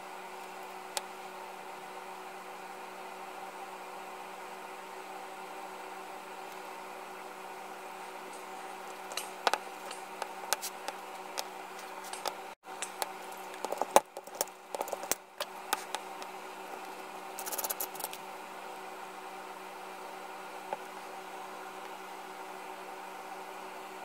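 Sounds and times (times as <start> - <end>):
shop hum: 0.0 - 24.0
small ticks: 12.1 - 18.2.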